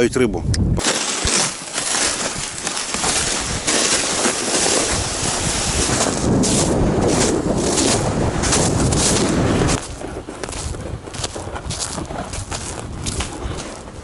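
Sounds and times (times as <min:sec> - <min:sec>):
wind buffeting microphone: 0:00.0 - 0:00.8, 0:02.1 - 0:14.0.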